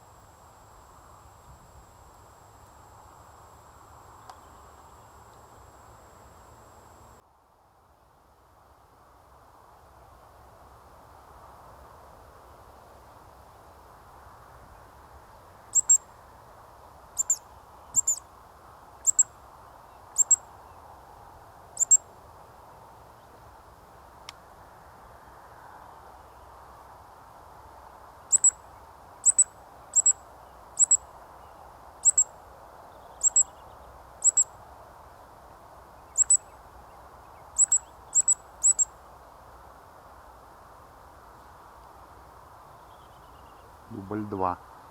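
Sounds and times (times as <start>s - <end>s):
faint steady hiss: 0.0s - 44.9s
bird high squeaking calls: 15.8s - 16.0s, 17.2s - 18.2s, 19.0s - 19.3s, 20.2s - 20.4s, 21.8s - 22.0s, 28.3s - 28.6s, 29.2s - 30.2s, 30.8s - 31.0s, 32.0s - 32.3s, 33.1s - 33.6s, 34.2s - 34.5s, 36.1s - 36.6s, 37.6s - 38.9s.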